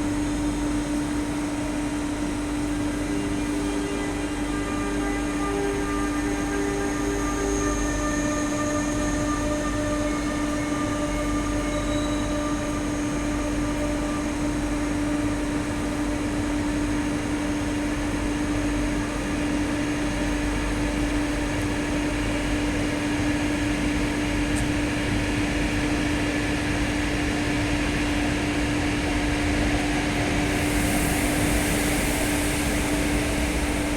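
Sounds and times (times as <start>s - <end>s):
high hiss: 30.4s - 33.9s.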